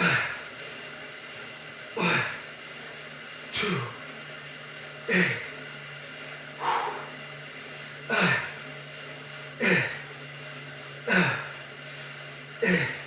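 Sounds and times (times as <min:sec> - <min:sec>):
steady low hum: 0:00.0 - 0:13.0
man grunting: 0:12.6 - 0:13.0.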